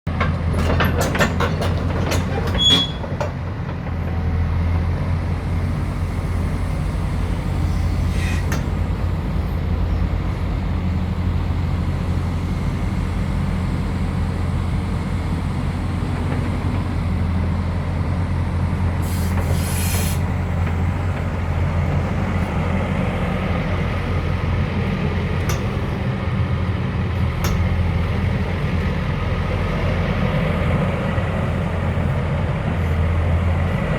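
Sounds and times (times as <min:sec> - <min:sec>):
excavator diesel engine running: 0:00.1 - 0:33.9
short hiss: 0:19.0 - 0:20.3.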